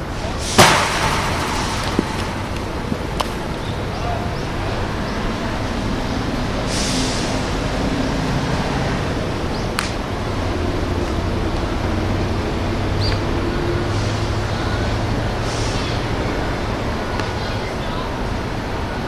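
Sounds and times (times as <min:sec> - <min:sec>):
low hum: 0:00.0 - 0:06.1
sharp cracks: 0:00.5 - 0:03.9.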